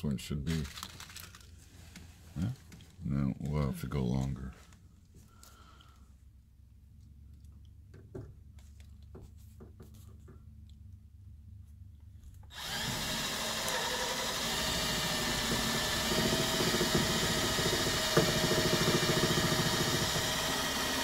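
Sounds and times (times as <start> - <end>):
electric power tool rattling: 12.5 - 21.0.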